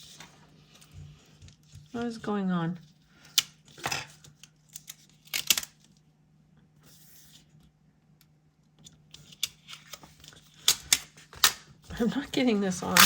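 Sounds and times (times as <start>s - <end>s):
soft paper rustle: 0.0s - 6.0s
tape and paper handling: 8.9s - 13.0s.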